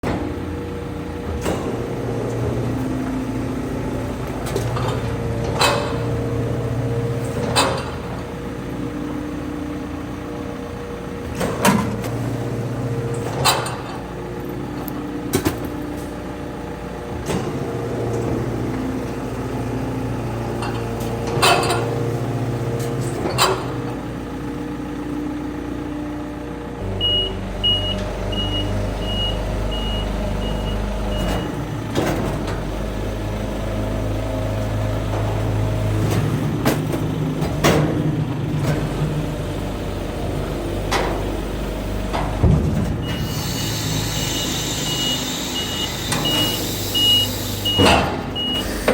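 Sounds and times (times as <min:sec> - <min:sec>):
garbage truck hydraulics humming: 0:00.0 - 0:48.9
high warning beeps: 0:44.3 - 0:48.7.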